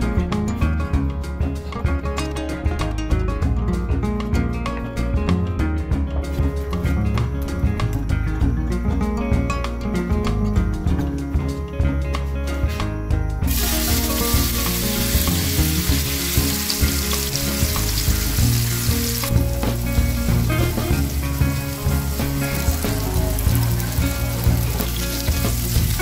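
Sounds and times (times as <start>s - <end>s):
tofu sizzling in hot oil: 13.5s - 26.0s.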